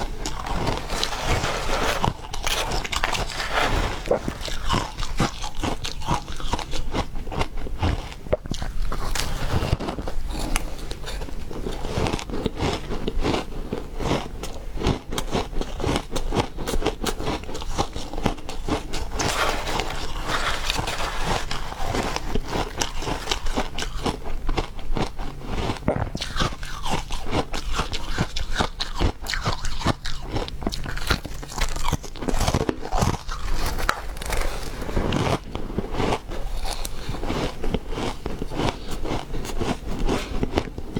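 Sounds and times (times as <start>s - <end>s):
ice being chewed: 0.0s - 40.9s.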